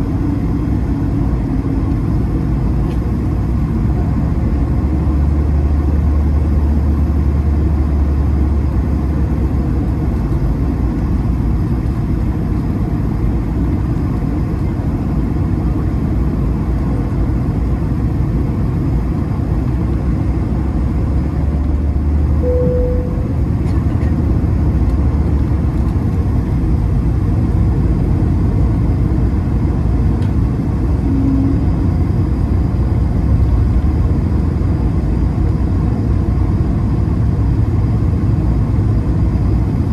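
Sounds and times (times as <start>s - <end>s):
aircraft cabin rumble: 0.0s - 39.9s
short tone: 22.4s - 24.1s, 31.0s - 32.2s
lower tone: 22.4s - 24.3s, 31.0s - 34.0s.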